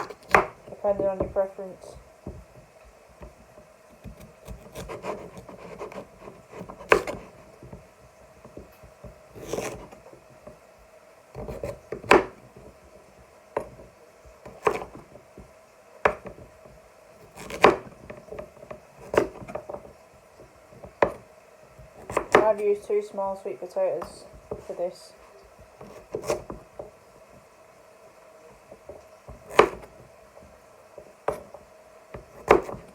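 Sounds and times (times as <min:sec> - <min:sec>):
knife knocking on chopping board: 0:02.2 - 0:02.6
knife sawing sweet potato: 0:04.1 - 0:07.5, 0:09.3 - 0:10.0, 0:17.3 - 0:17.8.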